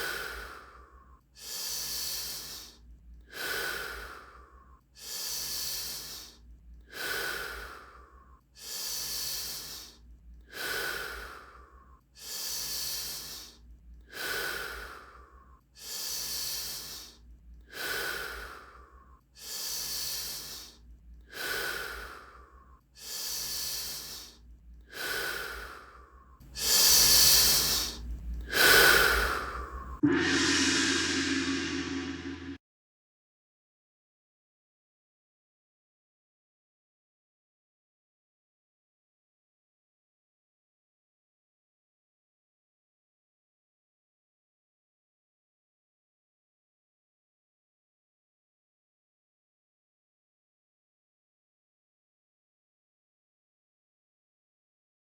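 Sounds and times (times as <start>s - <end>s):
deep breathing: 0.0s - 32.6s.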